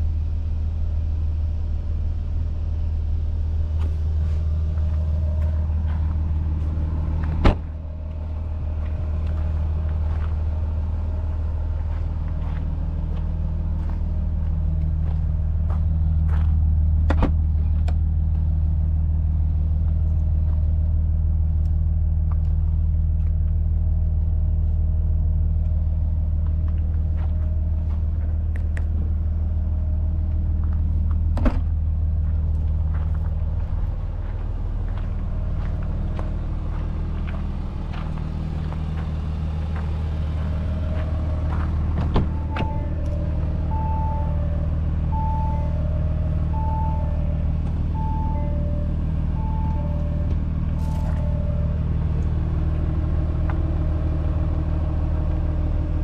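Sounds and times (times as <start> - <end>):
diesel engine idling: 0.0 - 56.0
sharp thump: 7.3 - 7.7.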